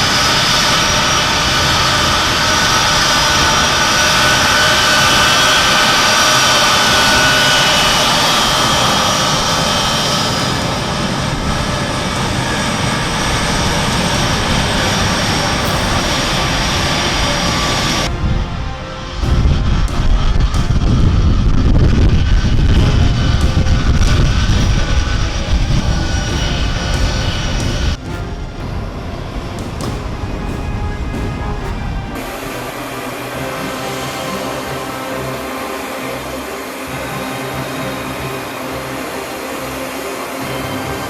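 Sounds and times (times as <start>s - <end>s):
jet engines roaring with whine: 0.0s - 41.0s.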